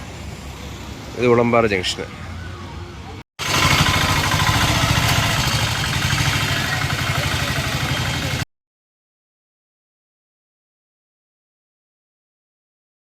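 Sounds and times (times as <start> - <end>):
low street background: 0.0 - 8.5
vehicle engine idling: 3.4 - 8.4.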